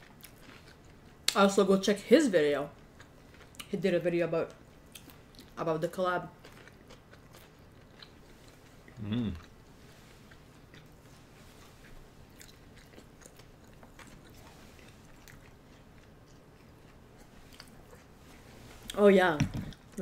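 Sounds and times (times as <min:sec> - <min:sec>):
soft chewing: 0:00.0 - 0:01.9, 0:02.6 - 0:20.0
person humming: 0:09.0 - 0:09.4.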